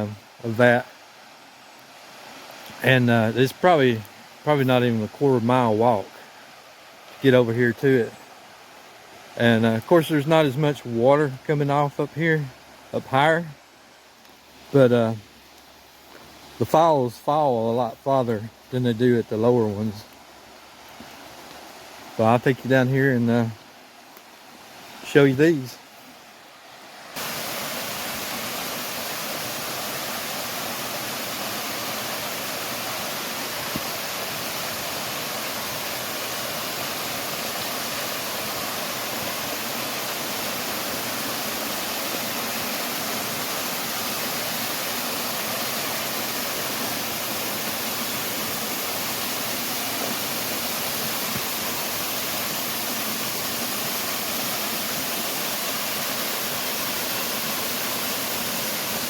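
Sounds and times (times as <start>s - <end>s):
waterfall roaring: 26.7s - 59.0s.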